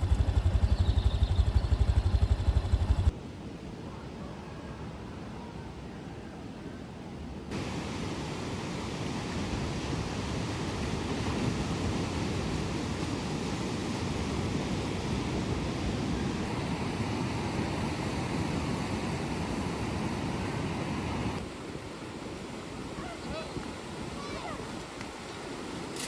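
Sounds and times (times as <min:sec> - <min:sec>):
wind buffeting microphone: 0:00.0 - 0:03.1
sea surf rushing: 0:07.5 - 0:26.0.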